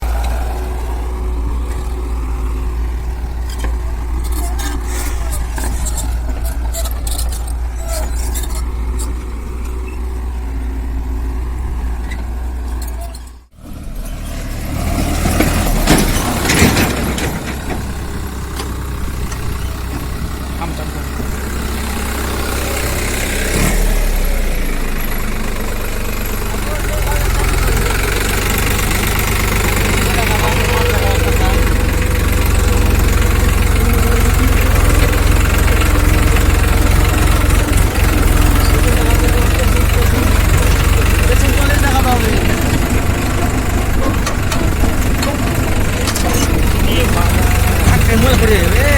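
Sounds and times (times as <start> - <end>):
diesel engine low rumble: 0.0 - 48.9
knocks and rattles: 3.0 - 10.2, 14.1 - 21.7, 26.4 - 48.9.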